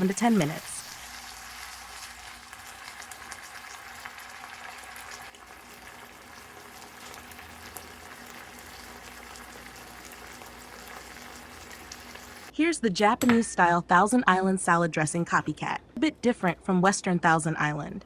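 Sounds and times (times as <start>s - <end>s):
food sizzling in a pan: 0.0s - 12.5s.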